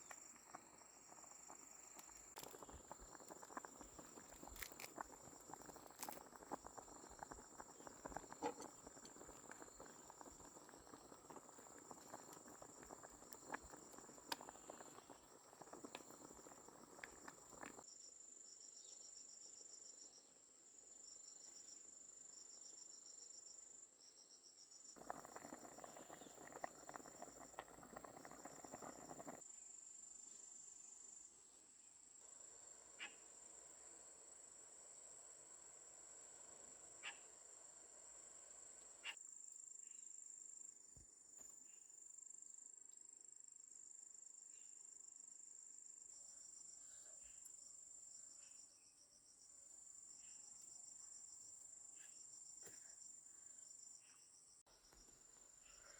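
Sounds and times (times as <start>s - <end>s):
insects trilling: 0.0s - 17.9s, 24.9s - 29.4s
crickets chirping: 0.0s - 20.3s, 21.0s - 55.9s.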